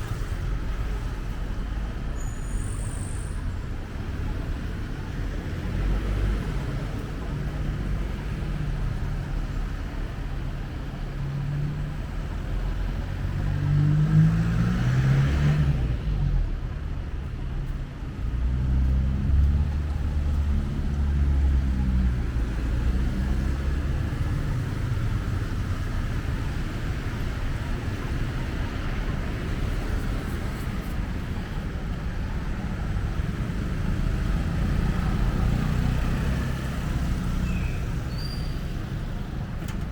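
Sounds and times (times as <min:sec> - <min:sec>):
vehicle engines passing: 0:00.0 - 0:39.9
vehicle revving up: 0:13.4 - 0:15.9.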